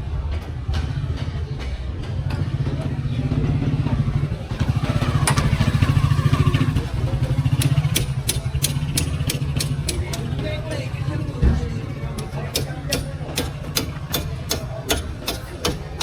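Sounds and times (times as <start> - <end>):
engine running: 2.0 - 16.0
sharp clicks: 7.5 - 10.3.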